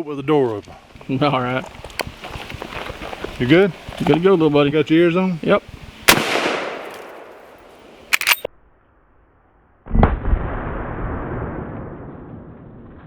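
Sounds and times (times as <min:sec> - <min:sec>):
rifle shot with echo: 0:06.1 - 0:07.5
short rifle clicks: 0:08.1 - 0:08.5.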